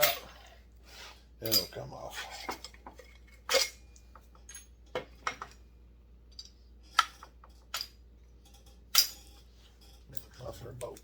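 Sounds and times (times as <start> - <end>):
metal parts clinking on workbench: 1.4 - 1.8, 4.4 - 5.6, 6.3 - 11.0.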